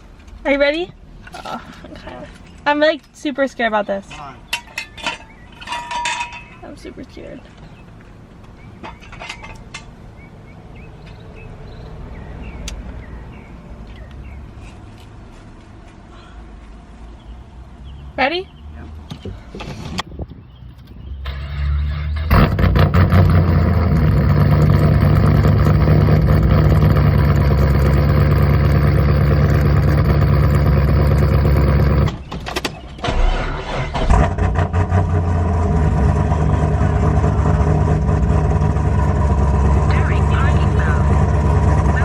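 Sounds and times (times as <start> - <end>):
engine revving blips: 20.8 - 32.2, 33.0 - 42.0
starter cranking: 21.3 - 32.2
loud rough engine idle: 23.2 - 32.1.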